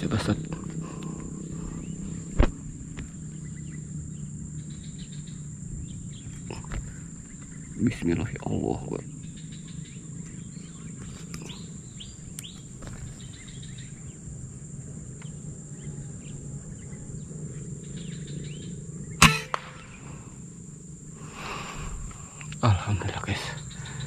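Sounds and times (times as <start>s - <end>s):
faint bird chirps: 0.0s - 14.2s, 14.8s - 20.4s, 21.3s - 24.0s
air rifle shot: 19.2s - 20.1s.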